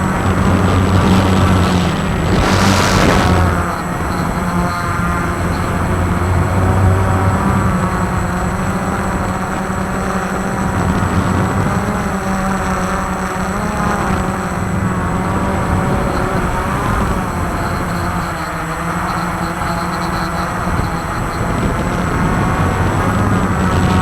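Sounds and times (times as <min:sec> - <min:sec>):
heavy low rumble: 0:00.0 - 0:08.2
quadcopter motors whining: 0:00.0 - 0:24.0.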